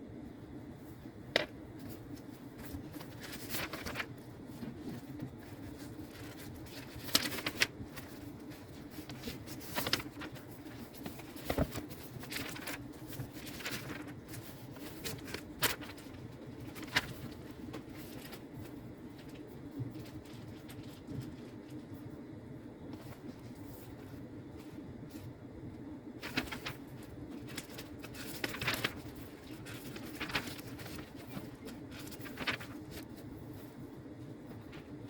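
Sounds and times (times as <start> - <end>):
low room tone hum: 0.0 - 35.0.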